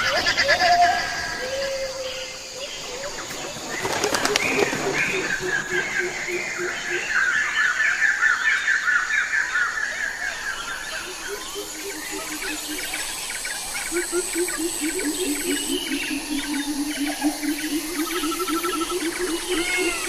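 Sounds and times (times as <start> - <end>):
birds chirping: 0.0 - 20.0
low rapidly repeated bird call: 11.1 - 20.0.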